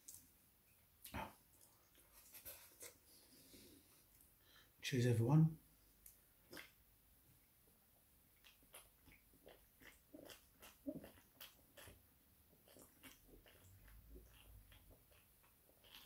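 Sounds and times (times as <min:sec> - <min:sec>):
chewing mouth sounds: 0:06.0 - 0:06.8, 0:08.3 - 0:16.0.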